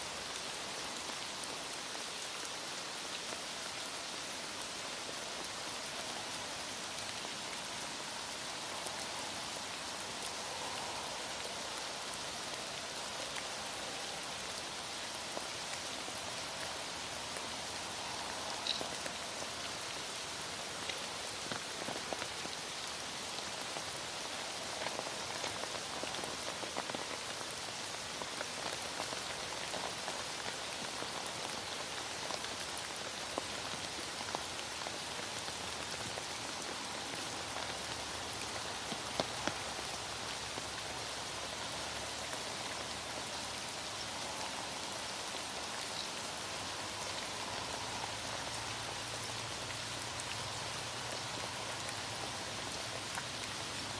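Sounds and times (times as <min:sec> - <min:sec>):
heavy rain falling: 0:00.0 - 0:53.9
raindrops ticking: 0:16.6 - 0:23.7.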